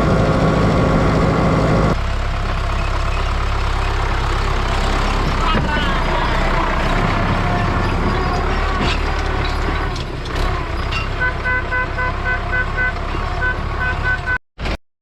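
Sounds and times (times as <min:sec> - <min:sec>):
tractor engine under load: 0:00.0 - 0:14.8
horn beeping short toots: 0:11.2 - 0:14.4.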